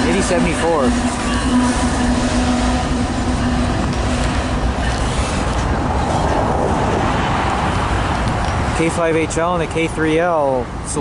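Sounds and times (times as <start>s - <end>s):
low steady tone: 0.0s - 6.5s
train rumbling on rails: 0.0s - 11.0s.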